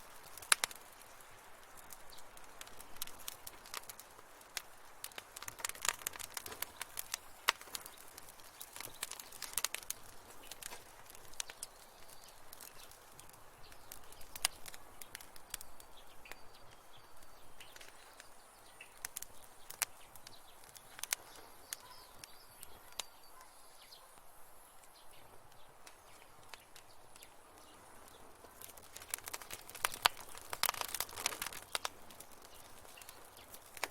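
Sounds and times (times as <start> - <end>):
wood fire crackling and popping: 0.0 - 23.5, 24.1 - 33.9.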